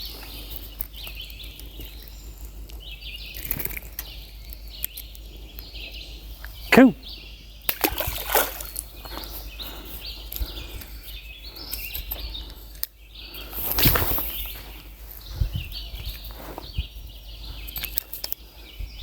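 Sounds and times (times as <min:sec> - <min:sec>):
birds chirping: 0:00.0 - 0:19.0
river water splashing: 0:07.7 - 0:08.9.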